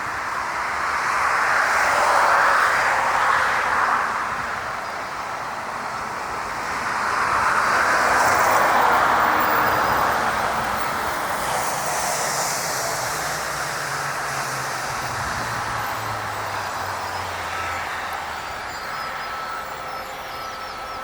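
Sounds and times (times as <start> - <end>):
jet engine rushing: 7.9 - 21.0.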